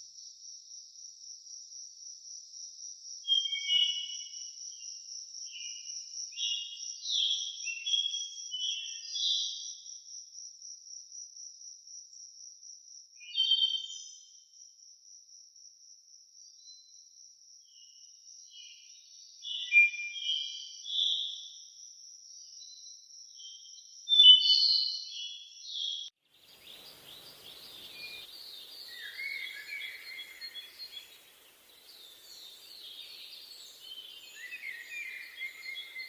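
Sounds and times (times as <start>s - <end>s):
songbirds chirping: 24.2s - 36.0s
insect trill: 26.3s - 36.0s.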